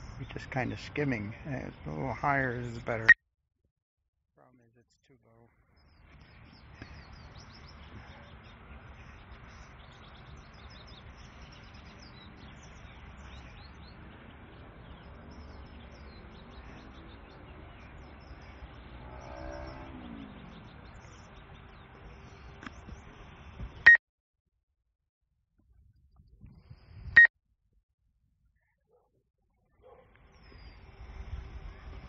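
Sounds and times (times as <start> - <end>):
outdoor background noise: 0.0 - 3.2, 4.7 - 24.0, 29.6 - 32.0
small birds chirping: 0.0 - 3.2, 4.4 - 24.0, 29.6 - 32.0
falling pitched whine: 18.8 - 21.0.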